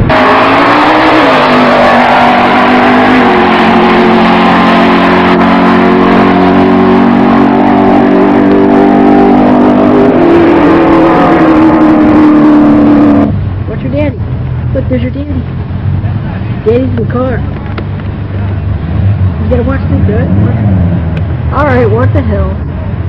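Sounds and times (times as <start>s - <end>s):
drag car engine running hard: 0.0s - 13.5s.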